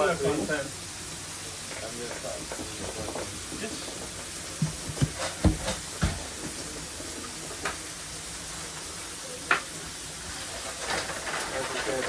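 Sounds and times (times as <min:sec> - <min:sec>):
griddle sizzling: 0:00.0 - 0:12.0
dull knocks of utensils: 0:04.6 - 0:06.6.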